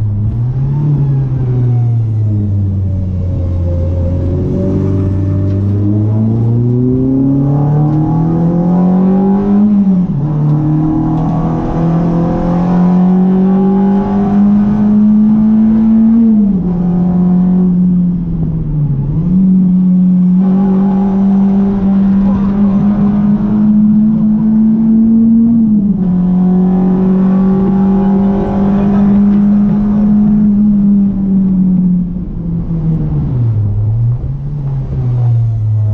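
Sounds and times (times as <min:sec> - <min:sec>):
car engine accelerating: 0:00.0 - 0:35.9.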